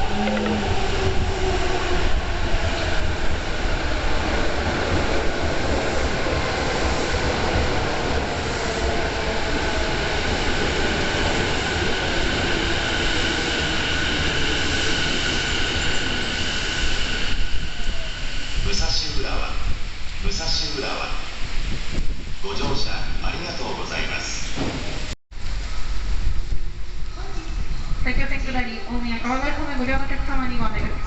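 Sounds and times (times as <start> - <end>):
wind buffeting microphone: 0.0 - 12.6, 21.3 - 23.2
high train whine: 0.0 - 22.3.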